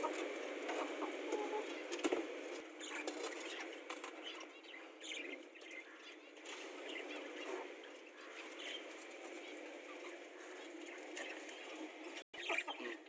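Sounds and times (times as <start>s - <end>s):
lovebirds chirping: 2.6s - 13.0s.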